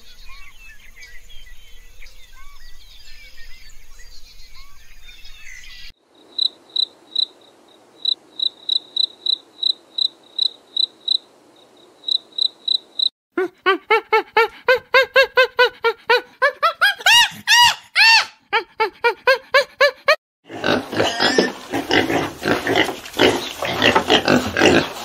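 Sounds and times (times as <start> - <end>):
crickets chirping: 6.0 - 13.1
chimpanzee hooting calls: 13.4 - 20.2.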